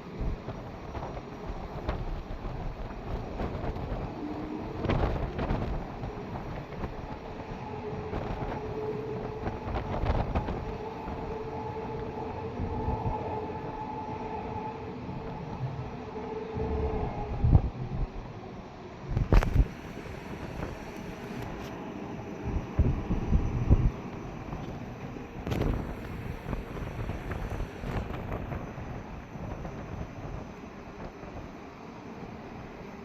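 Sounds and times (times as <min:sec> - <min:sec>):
jet engines rumbling: 0:00.0 - 0:33.0
steady hum: 0:00.0 - 0:33.0
wind buffeting microphone: 0:00.0 - 0:33.0.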